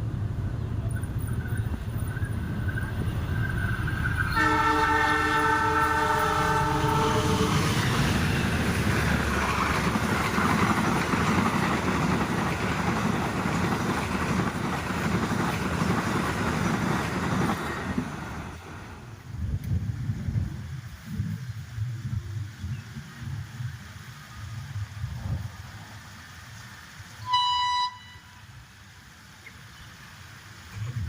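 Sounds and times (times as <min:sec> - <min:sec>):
train wheels rumbling on rails: 0:00.0 - 0:27.4
locomotive horn: 0:04.2 - 0:08.4, 0:27.2 - 0:28.5.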